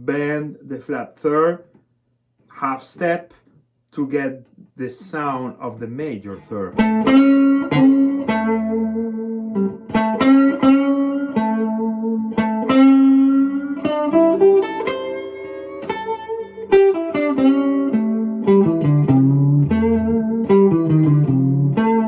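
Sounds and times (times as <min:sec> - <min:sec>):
blues guitar picked notes: 0:04.8 - 0:22.0.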